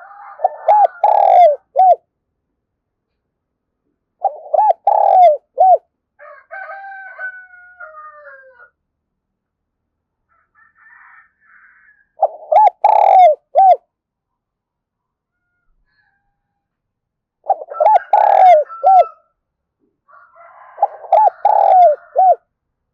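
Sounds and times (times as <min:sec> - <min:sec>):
dove cooing: 0:00.0 - 0:02.0, 0:04.2 - 0:05.8, 0:12.2 - 0:13.8, 0:17.4 - 0:19.2, 0:20.8 - 0:22.4
drawn-out falling bird call: 0:00.4 - 0:02.0, 0:04.2 - 0:05.8, 0:12.2 - 0:13.8, 0:17.5 - 0:19.2, 0:20.8 - 0:22.4.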